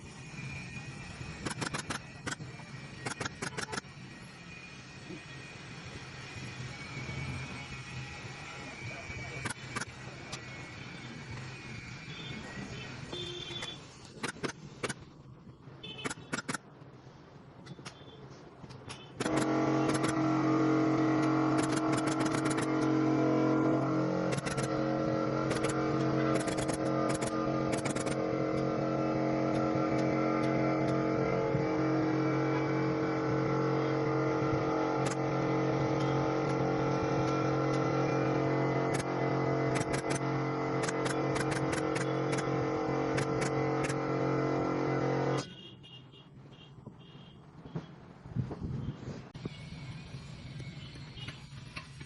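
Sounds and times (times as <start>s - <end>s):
sharp clicks: 1.4s - 3.9s, 13.5s - 15.1s, 16.0s - 16.7s, 21.0s - 23.0s, 24.2s - 24.8s, 25.4s - 28.7s, 38.9s - 44.0s
motor running: 19.2s - 45.4s.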